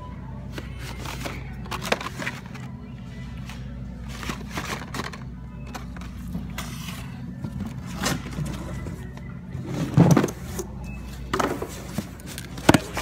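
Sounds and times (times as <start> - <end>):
plastic packaging rustling and clattering: 0.6 - 2.7, 4.0 - 9.2, 11.3 - 13.0.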